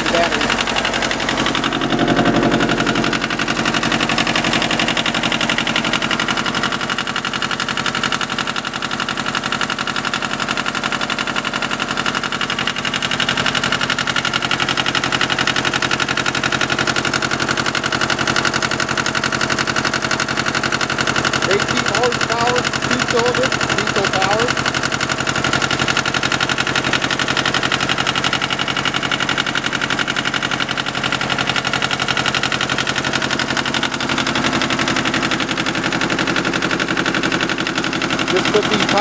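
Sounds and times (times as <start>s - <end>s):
diesel tractor engine idling: 0.0s - 39.0s.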